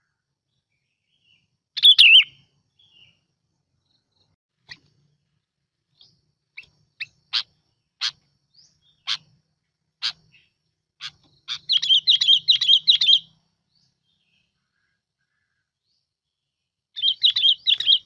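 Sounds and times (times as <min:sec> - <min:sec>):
bulbul calling: 0:01.2 - 0:03.2, 0:06.0 - 0:15.6, 0:17.0 - 0:18.0.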